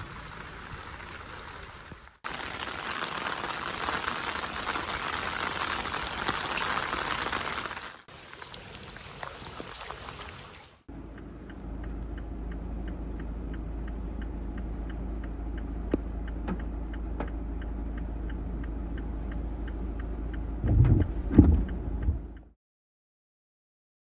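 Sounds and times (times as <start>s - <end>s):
low vehicle rumble: 0.0s - 2.3s, 10.8s - 22.6s
light regular ticking: 10.9s - 22.5s
loud thumps: 20.6s - 22.3s.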